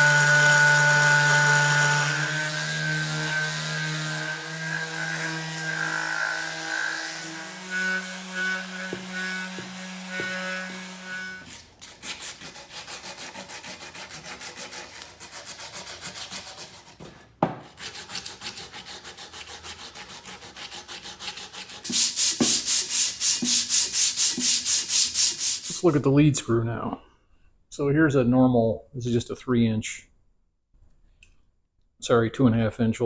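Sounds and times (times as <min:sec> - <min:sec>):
sanding on steel frame: 0:00.0 - 0:17.0, 0:17.8 - 0:26.0.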